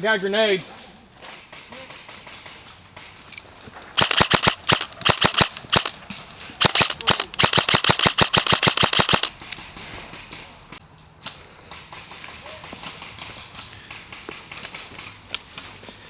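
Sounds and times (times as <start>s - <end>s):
airsoft gun firing bursts: 4.0s - 6.0s, 6.6s - 9.4s.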